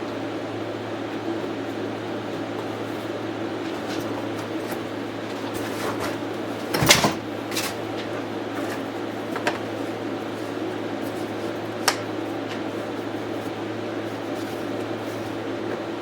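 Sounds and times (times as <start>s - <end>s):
low mechanical hum: 0.0s - 16.0s
objects clicking and clunking: 3.6s - 9.7s.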